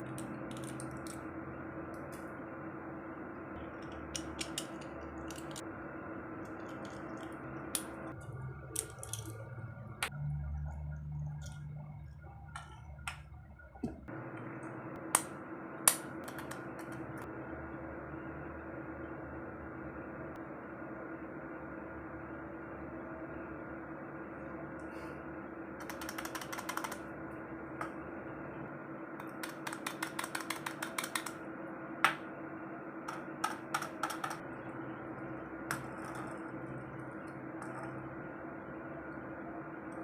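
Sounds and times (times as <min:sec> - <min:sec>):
machine hum: 0:00.0 - 0:40.0
rapid mechanical clicking: 0:25.8 - 0:27.1, 0:29.2 - 0:31.4.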